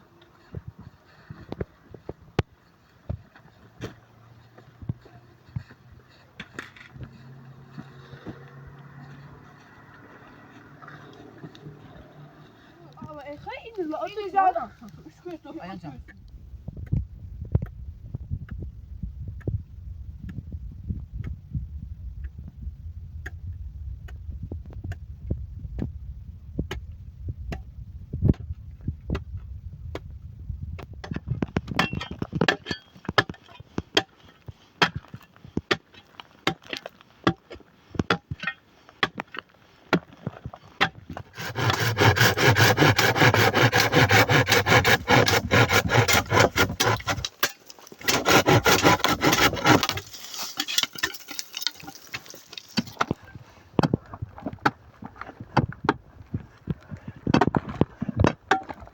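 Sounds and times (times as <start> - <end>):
scraping on wood: 40.3 - 56.0.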